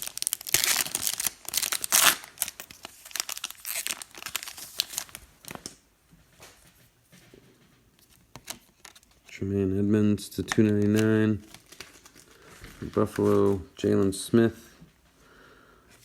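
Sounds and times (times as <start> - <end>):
foil wrappers crinkling and tearing: 0.0 - 5.8, 10.7 - 13.7.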